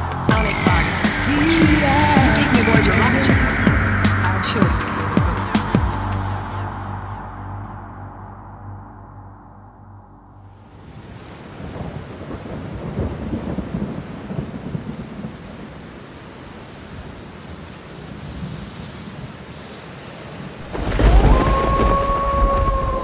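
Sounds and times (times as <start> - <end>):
synthesizer rumbling noise: 0.0 - 10.6.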